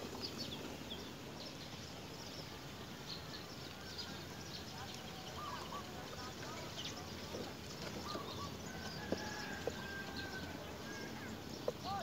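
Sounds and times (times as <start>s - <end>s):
bird calls: 3.2s - 12.0s.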